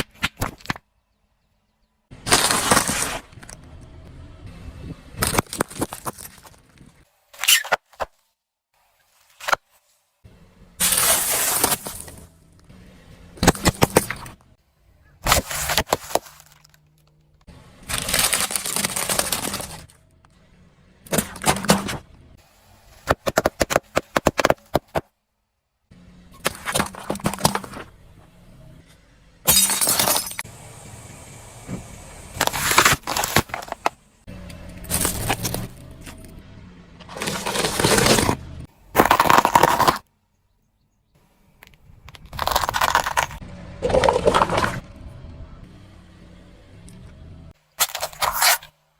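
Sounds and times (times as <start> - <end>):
objects crunching under car tyres: 2.1 - 3.8, 5.2 - 8.2, 10.8 - 20.0, 21.1 - 22.1, 26.3 - 30.5, 31.6 - 36.4, 37.0 - 40.1, 41.6 - 44.9, 47.5 - 48.8.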